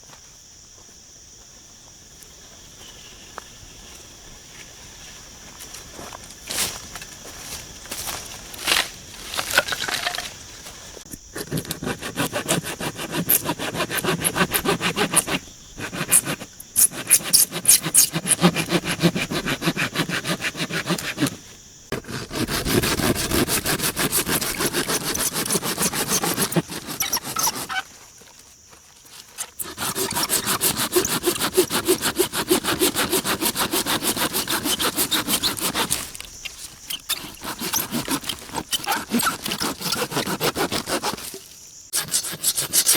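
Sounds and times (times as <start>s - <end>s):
rapid rasping scraping: 11.3s - 42.9s.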